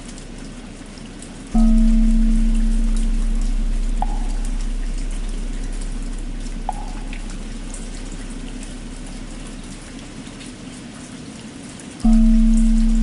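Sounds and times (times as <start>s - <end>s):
steady rain: 0.0s - 13.0s
temple bell hum: 1.6s - 10.0s, 12.0s - 13.0s.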